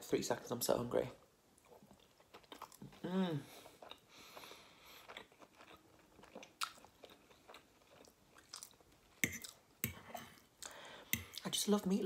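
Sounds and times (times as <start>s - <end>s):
person chewing food: 1.6s - 11.4s
fork tapping and scraping plate: 9.2s - 10.3s.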